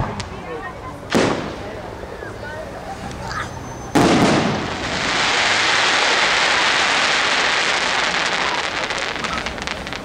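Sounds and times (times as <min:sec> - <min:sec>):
firework stars crackling: 0:00.0 - 0:02.1, 0:03.0 - 0:10.0
firework burst: 0:01.1 - 0:01.7, 0:03.9 - 0:10.0.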